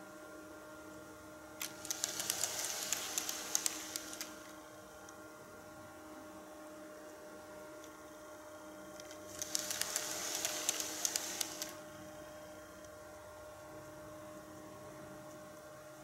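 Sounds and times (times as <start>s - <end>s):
faint steady hum: 0.0s - 16.0s
model train wheels rattling: 1.7s - 4.4s, 9.3s - 11.8s.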